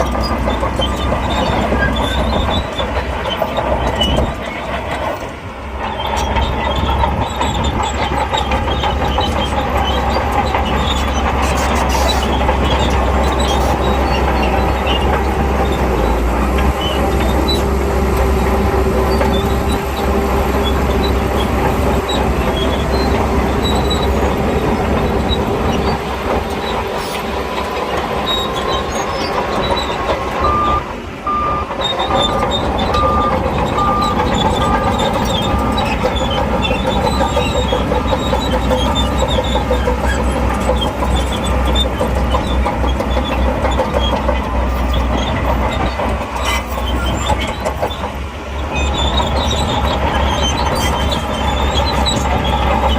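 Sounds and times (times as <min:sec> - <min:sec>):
diesel engine under load: 0:00.0 - 0:52.9
steel tracks clattering: 0:00.0 - 0:52.9
reversing alarm beeping: 0:28.2 - 0:36.0.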